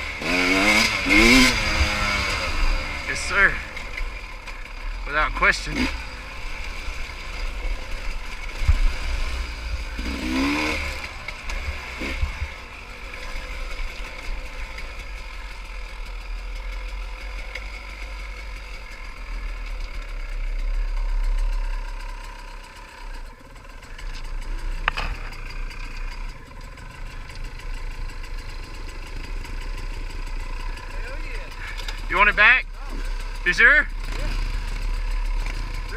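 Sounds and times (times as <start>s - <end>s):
pit bike engine revving: 0.0s - 35.9s.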